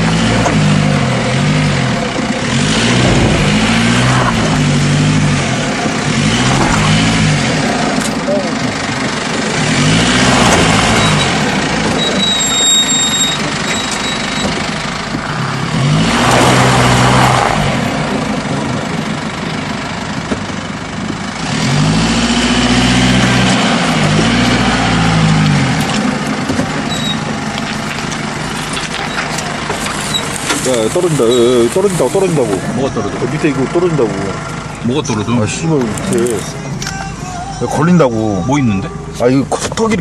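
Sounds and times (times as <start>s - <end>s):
car engine revving: 0.0s - 19.8s, 21.3s - 36.9s.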